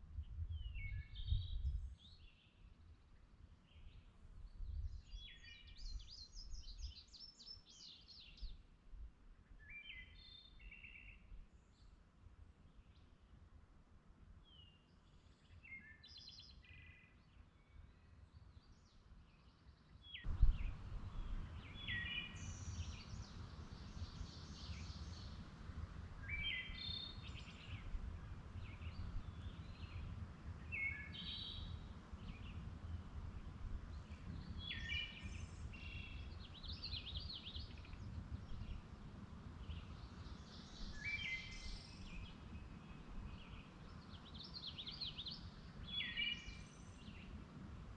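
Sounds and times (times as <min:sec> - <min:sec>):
songbird chirping: 0:14.5 - 0:25.6, 0:26.2 - 0:47.4.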